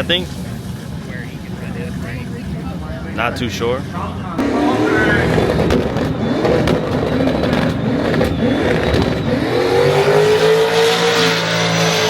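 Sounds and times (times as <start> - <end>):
drag race car engine accelerating: 3.9 - 12.0.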